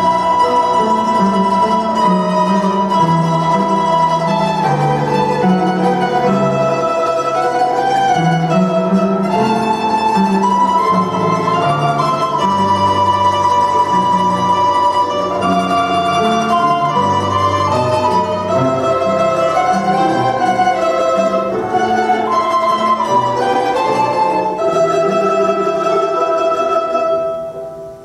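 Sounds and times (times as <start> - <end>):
plucked string instruments duet: 0.0 - 28.0.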